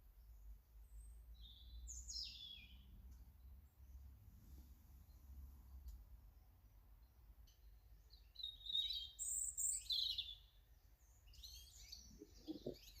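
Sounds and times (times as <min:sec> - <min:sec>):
songbird twittering: 0:01.0 - 0:02.9, 0:07.5 - 0:10.5, 0:11.1 - 0:13.0.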